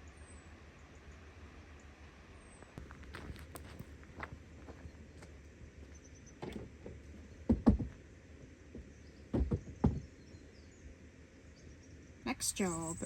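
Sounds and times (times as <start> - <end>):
low background hum: 0.0 - 13.0
short knocks and thumps: 6.4 - 8.0, 8.7 - 10.1.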